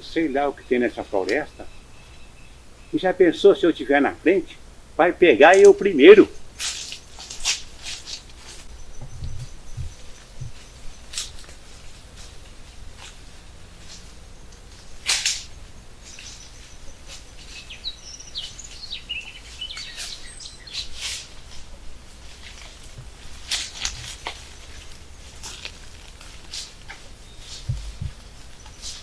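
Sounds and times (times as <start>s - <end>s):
birds chirping: 0.0s - 29.0s
steady low rumble: 6.3s - 29.0s
short rustles and knocks: 6.6s - 17.6s, 20.7s - 29.0s.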